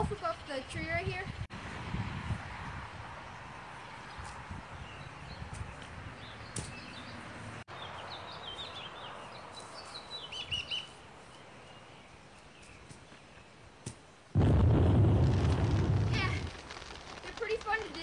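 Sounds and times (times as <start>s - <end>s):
small birds chirping: 4.0s - 14.2s
loud deep rumbling burst: 14.4s - 18.0s.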